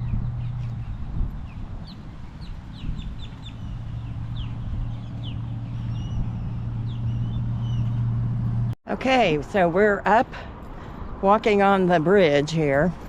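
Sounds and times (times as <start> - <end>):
birds chirping: 0.0 - 8.7
low hum: 3.1 - 8.8.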